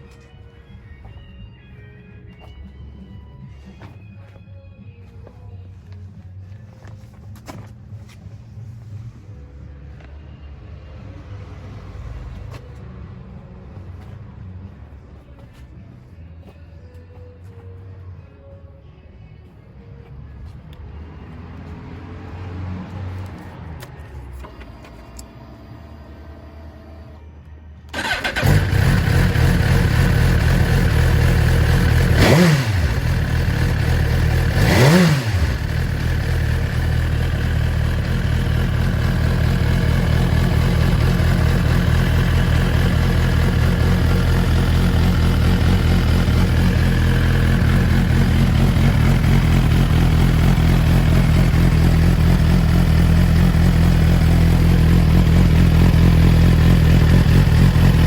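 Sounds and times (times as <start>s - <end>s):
engine revs blipped: 27.9s - 58.0s
motorcycle engine idling: 27.9s - 58.0s
motorcycle engine starting: 27.9s - 58.0s.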